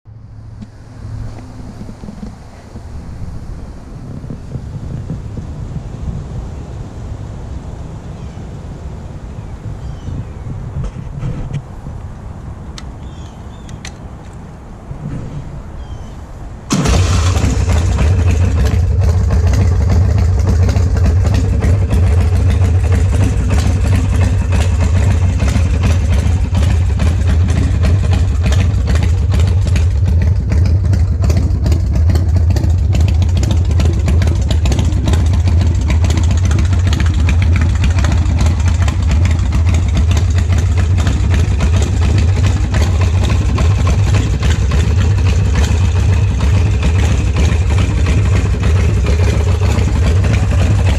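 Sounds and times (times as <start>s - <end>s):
motorcycle engine idling loudly: 16.7s - 50.9s.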